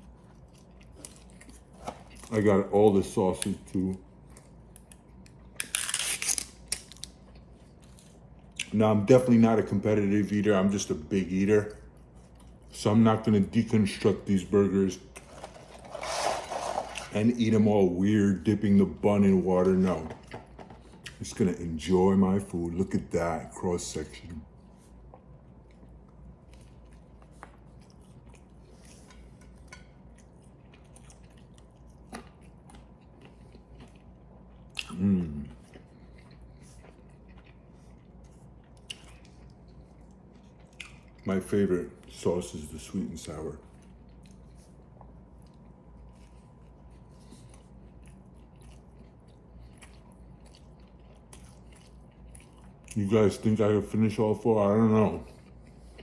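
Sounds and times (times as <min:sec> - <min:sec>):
person chewing: 0:00.0 - 0:02.3, 0:24.9 - 0:41.3, 0:43.6 - 0:53.0
low steady hum: 0:00.0 - 0:56.0.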